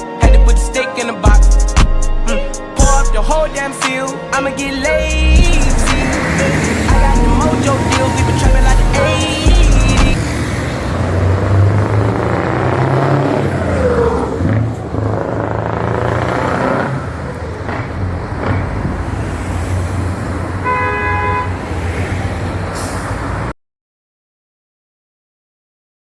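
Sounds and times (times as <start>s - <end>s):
truck diesel engine running: 1.3s - 10.4s
truck horn blast: 2.0s - 10.2s, 20.6s - 21.6s.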